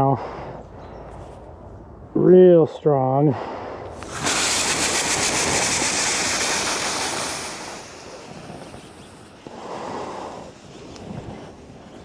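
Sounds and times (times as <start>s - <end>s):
water flashing to steam hiss: 4.0s - 11.1s.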